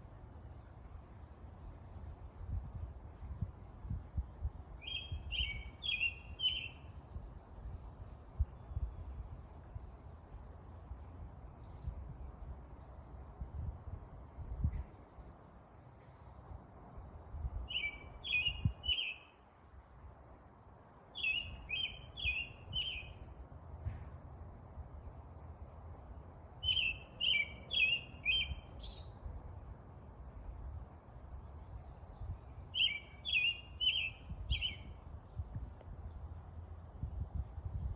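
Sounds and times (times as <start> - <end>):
high bird chirps: 4.8 - 6.9, 21.1 - 24.0, 26.6 - 29.7, 31.9 - 35.6
bird singing short phrase: 4.8 - 7.9, 26.6 - 29.6, 31.8 - 35.5.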